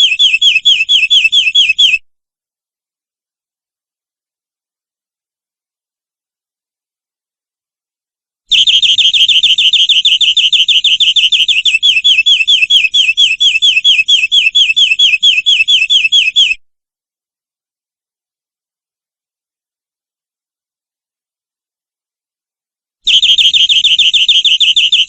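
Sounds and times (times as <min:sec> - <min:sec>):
canary trilling: 0:00.0 - 0:02.0, 0:08.5 - 0:16.6, 0:23.1 - 0:25.0.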